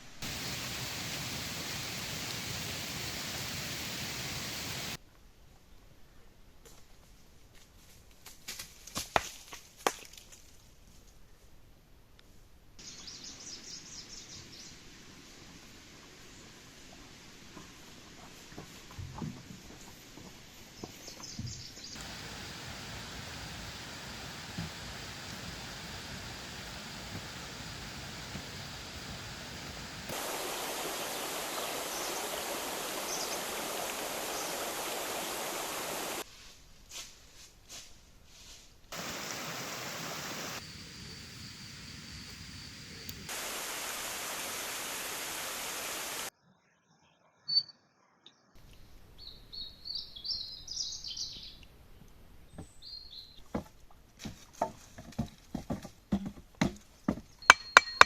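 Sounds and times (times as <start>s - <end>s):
steady hiss: 0.0s - 5.0s, 12.8s - 21.0s, 21.9s - 46.3s
small birds chirping: 12.8s - 14.9s, 31.0s - 36.2s, 46.8s - 53.5s.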